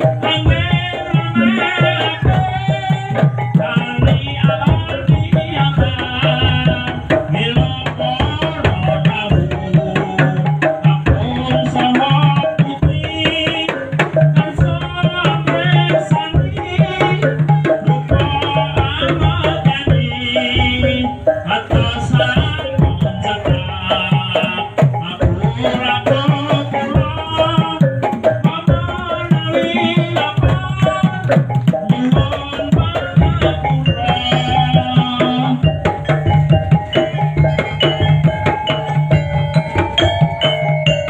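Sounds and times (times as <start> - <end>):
hand drums beating: 0.0 - 41.0
wavering melodic line: 29.2 - 41.0.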